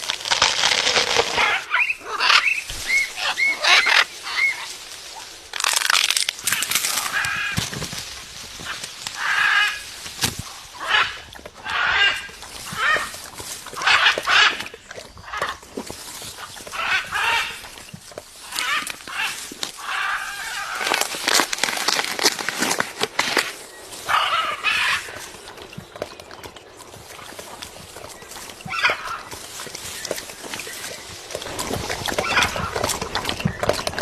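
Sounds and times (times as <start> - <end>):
parrot squawking and chirping: 1.4 - 4.6.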